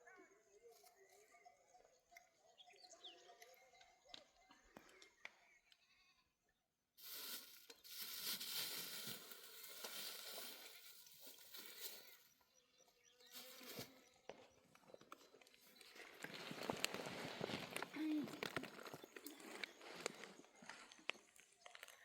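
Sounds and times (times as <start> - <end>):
faint goat bleats: 5.8 - 6.4.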